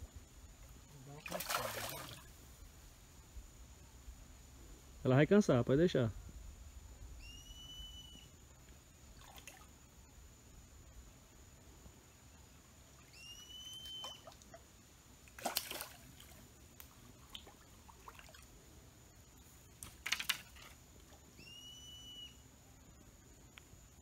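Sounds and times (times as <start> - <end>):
fish splashing in water: 1.2 - 2.3, 15.3 - 16.4, 17.1 - 18.5
faint steady high tone: 7.1 - 8.6, 21.3 - 24.0
short whistled call: 7.2 - 8.4, 13.1 - 14.4, 21.4 - 22.4.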